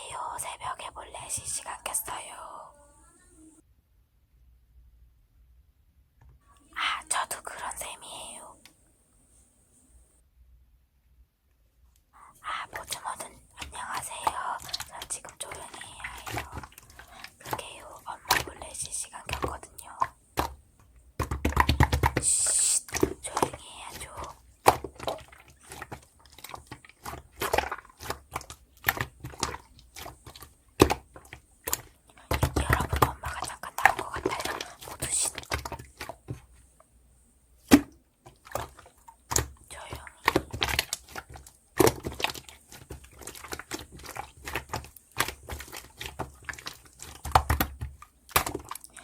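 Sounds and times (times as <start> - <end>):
rustling and crinkling: 12.6 - 37.0, 37.6 - 49.0.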